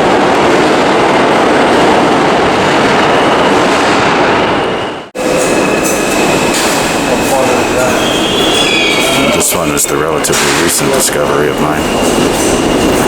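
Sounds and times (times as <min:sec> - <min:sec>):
subway train running: 0:00.0 - 0:13.0
faint high squeal: 0:04.6 - 0:13.0.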